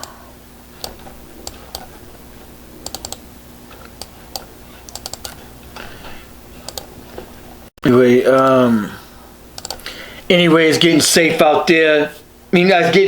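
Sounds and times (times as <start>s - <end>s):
faint steady hum: 0.0s - 13.0s
computer keyboard keys tapping: 0.8s - 2.0s, 2.8s - 5.5s, 6.6s - 6.9s, 9.6s - 9.9s.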